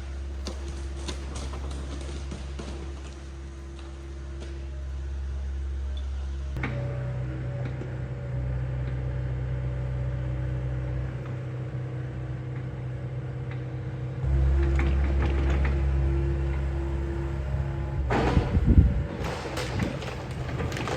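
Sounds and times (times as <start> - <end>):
debris knocks and cracks: 0.4 - 3.9, 18.1 - 20.9
excavator diesel engine running: 6.6 - 20.9.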